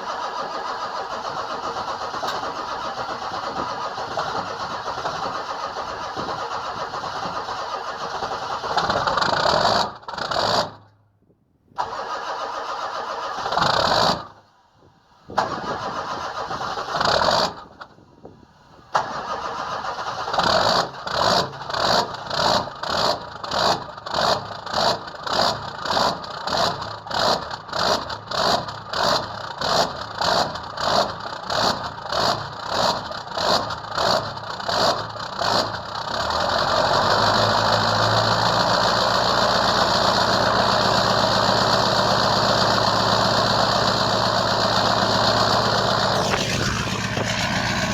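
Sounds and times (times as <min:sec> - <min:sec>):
diesel engine starter cranking: 0:00.0 - 0:10.8, 0:11.7 - 0:14.3, 0:15.3 - 0:18.0, 0:18.7 - 0:22.4, 0:36.4 - 0:47.9
diesel engine idling: 0:35.2 - 0:47.9.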